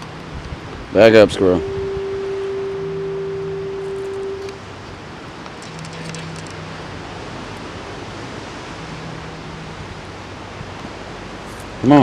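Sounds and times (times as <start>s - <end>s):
held low tone: 1.3s - 4.7s.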